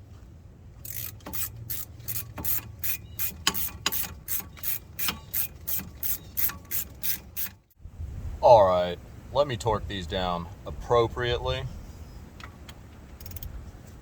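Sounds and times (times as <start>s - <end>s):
ratchet wrench pawl clicking: 0.8s - 7.7s, 13.2s - 13.5s.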